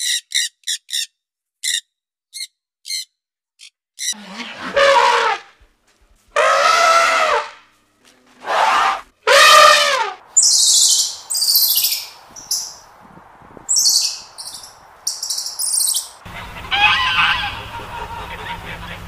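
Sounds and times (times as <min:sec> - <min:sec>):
elephants trumpeting: 0:04.1 - 0:05.6, 0:06.3 - 0:07.7, 0:08.3 - 0:10.3, 0:16.3 - 0:19.0.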